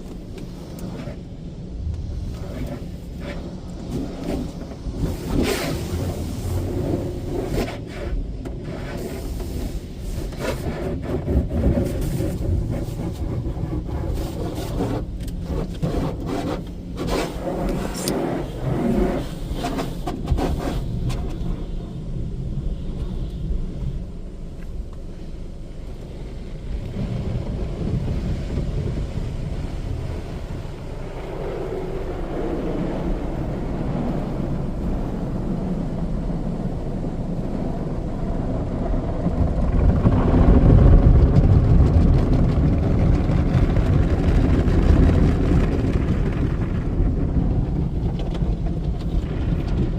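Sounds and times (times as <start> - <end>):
steady low rumble: 0.0 - 49.9
car wash brushes scrubbing: 2.2 - 22.2.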